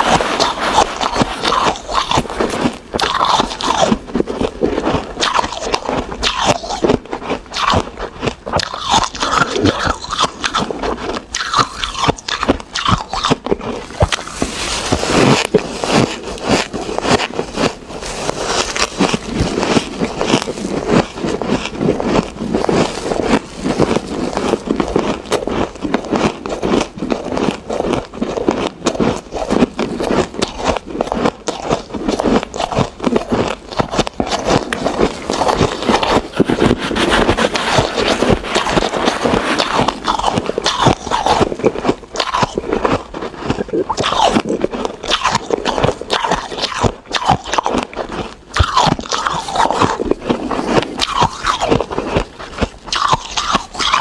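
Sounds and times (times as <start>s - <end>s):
ice crunching being chewed: 0.0s - 54.0s.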